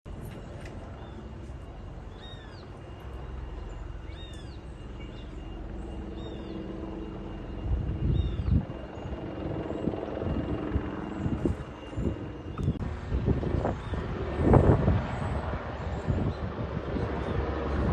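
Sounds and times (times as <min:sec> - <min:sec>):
helicopter rotor and engine: 0:00.1 - 0:17.9
bird chirping: 0:02.0 - 0:10.0.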